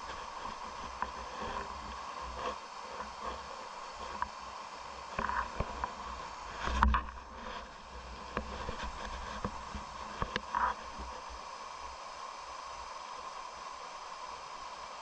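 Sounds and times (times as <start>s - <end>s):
stream water rushing: 0.0s - 15.0s
small knocks and clatters: 5.1s - 11.1s.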